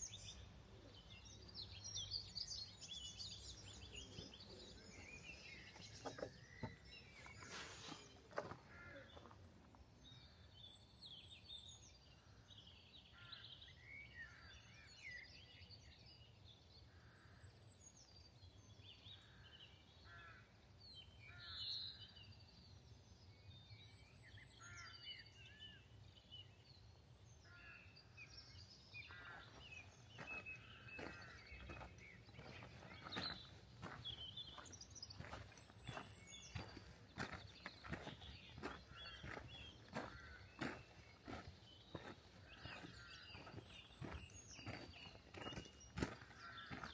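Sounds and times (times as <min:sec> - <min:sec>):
small birds chirping: 0:00.0 - 0:14.5, 0:27.4 - 0:46.9
footsteps: 0:30.2 - 0:46.9.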